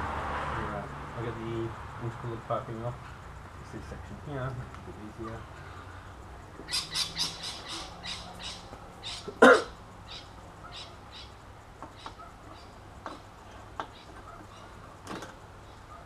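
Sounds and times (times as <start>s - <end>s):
bird chirping: 6.5s - 15.0s.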